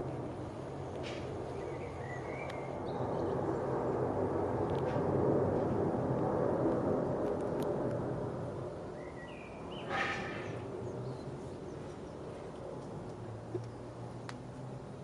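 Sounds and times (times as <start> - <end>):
traffic rumble: 0.0 - 15.0
bird chirping: 1.5 - 3.4, 9.0 - 12.2.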